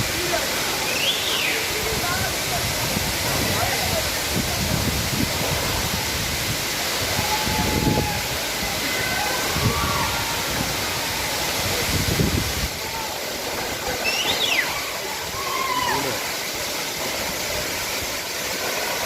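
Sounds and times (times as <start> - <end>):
waterfall rushing: 0.0 - 19.0
faint voices: 6.9 - 19.0.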